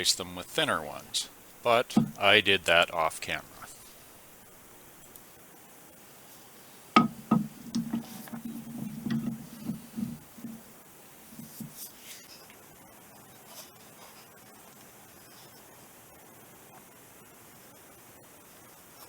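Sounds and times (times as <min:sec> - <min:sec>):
metal parts knocking: 0:01.9 - 0:02.2, 0:07.0 - 0:10.6
metal rubbing and scraping: 0:07.1 - 0:10.7.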